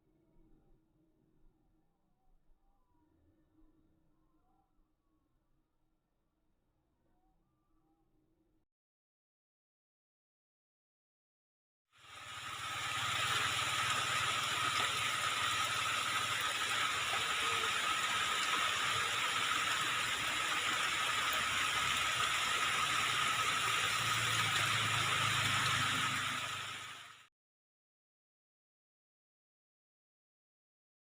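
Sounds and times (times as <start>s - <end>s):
steady hiss: 12.0s - 27.2s.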